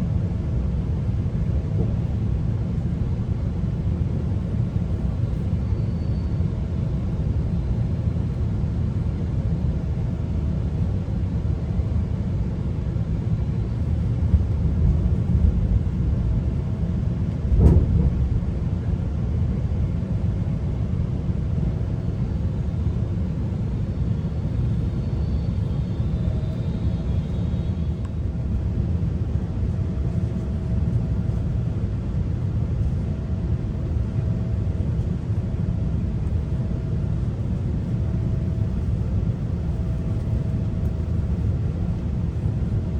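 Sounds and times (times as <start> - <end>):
faint hum: 0.6 - 42.9
train rumbling: 13.2 - 42.6.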